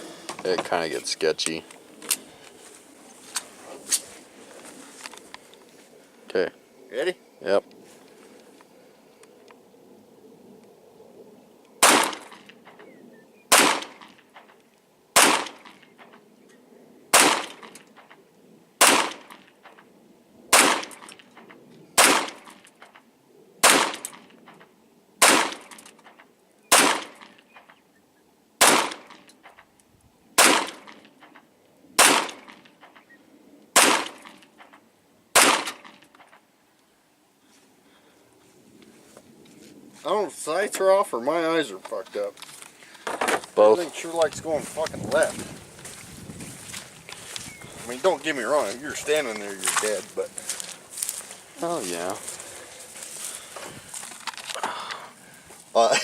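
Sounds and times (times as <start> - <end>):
pistol shots with echo: 11.8 - 12.4, 13.5 - 14.1, 15.2 - 15.8, 17.1 - 17.8, 18.8 - 19.3, 20.5 - 21.0, 22.0 - 22.5, 23.6 - 24.2, 25.2 - 25.7, 26.7 - 27.3, 28.6 - 29.2, 30.4 - 31.0, 32.0 - 32.6, 33.7 - 34.4, 35.3 - 36.0.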